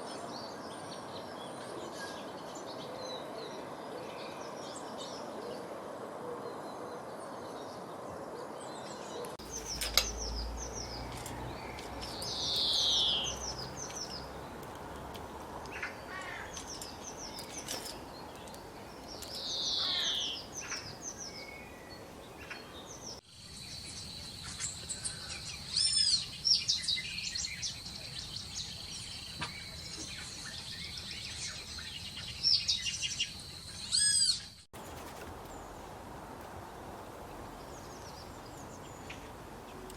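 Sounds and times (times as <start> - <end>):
small birds chirping: 8.5 - 35.9.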